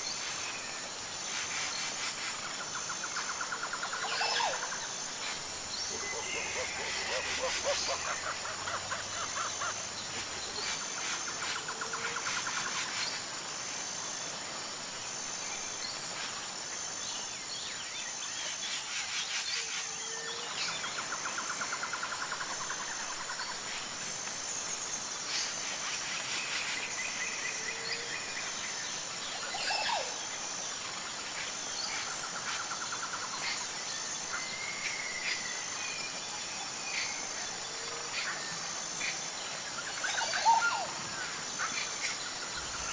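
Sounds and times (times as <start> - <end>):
insect chorus: 0.0 - 42.9.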